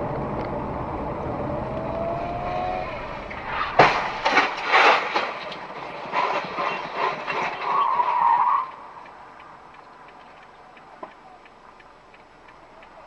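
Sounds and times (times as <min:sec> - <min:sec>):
tyre skid screeching: 0:01.8 - 0:08.9
car crash impacts: 0:02.8 - 0:07.8
faint regular ticking: 0:08.7 - 0:13.0.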